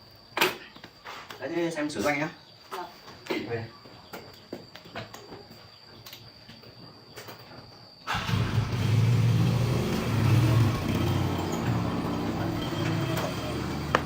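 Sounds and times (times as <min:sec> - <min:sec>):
small engine running roughly: 0:08.1 - 0:14.0.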